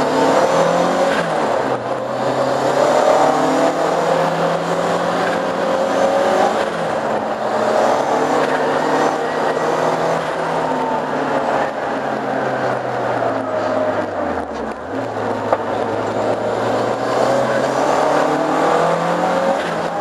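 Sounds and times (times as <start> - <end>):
road noise: 0.0 - 20.0.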